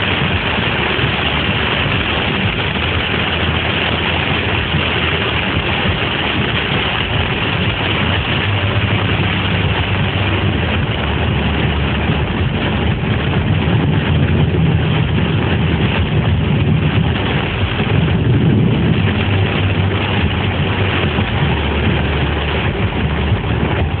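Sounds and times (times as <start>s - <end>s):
floodwater rushing: 0.0s - 24.0s.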